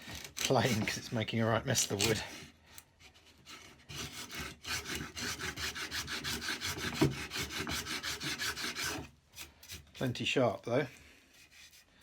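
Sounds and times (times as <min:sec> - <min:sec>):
plane blade shaving wood: 0:03.4 - 0:09.1.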